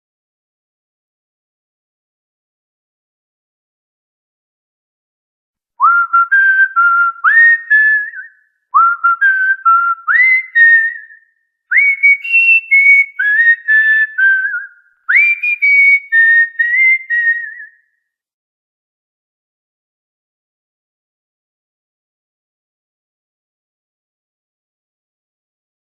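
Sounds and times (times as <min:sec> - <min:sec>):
cockatiel whistling a tune: 0:05.8 - 0:17.8.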